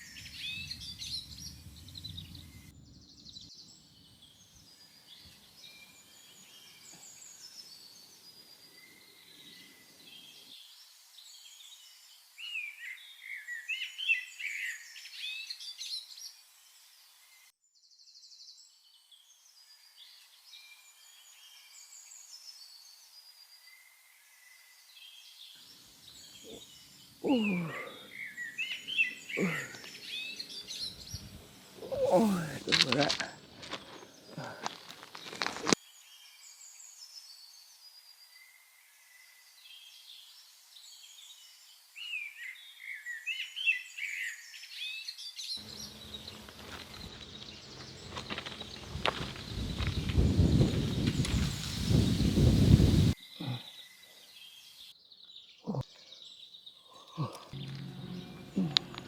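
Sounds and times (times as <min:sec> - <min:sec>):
birds chirping and calling: 0:26.1 - 0:35.8, 0:45.6 - 0:53.6, 0:55.5 - 0:59.0.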